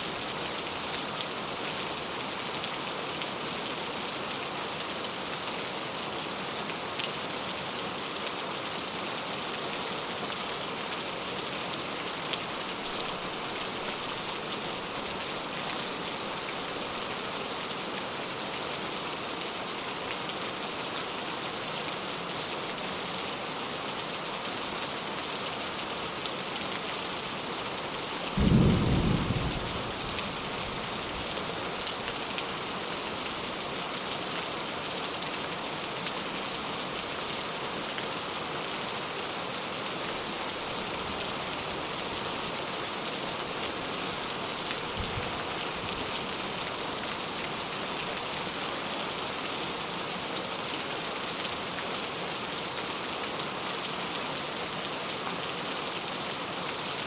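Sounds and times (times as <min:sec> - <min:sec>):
rain falling: 0:00.0 - 0:57.0
thunder rumble: 0:28.4 - 0:30.5.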